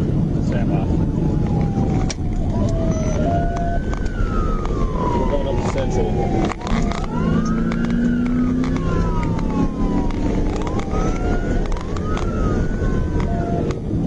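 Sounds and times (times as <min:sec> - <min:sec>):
car engine and road noise: 0:00.0 - 0:14.0
police siren wailing: 0:00.0 - 0:14.0.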